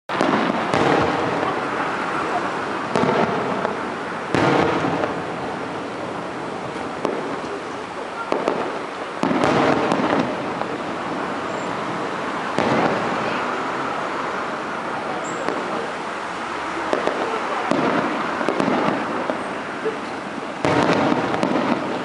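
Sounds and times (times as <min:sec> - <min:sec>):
fireworks bursting: 0:00.1 - 0:22.0
crackling pops: 0:02.9 - 0:05.2, 0:06.7 - 0:10.8, 0:16.9 - 0:22.0.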